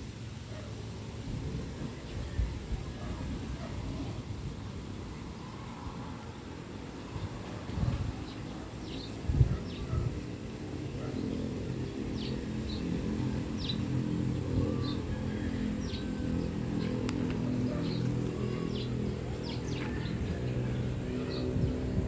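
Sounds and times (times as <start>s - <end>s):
birds chirping: 6.2s - 22.0s
bulldozer diesel engine droning: 11.7s - 22.0s.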